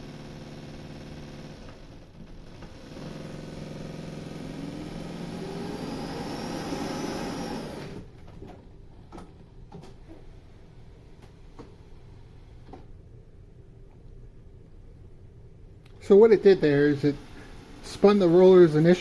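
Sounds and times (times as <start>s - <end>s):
suction motor whine: 4.3s - 8.1s.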